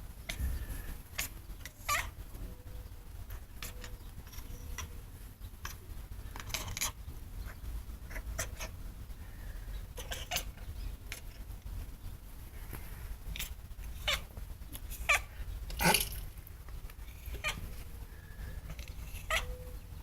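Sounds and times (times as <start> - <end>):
cat chattering squeaks: 1.2 - 2.2, 8.1 - 8.8, 10.0 - 11.3, 15.0 - 16.2, 17.2 - 17.7, 19.0 - 19.6.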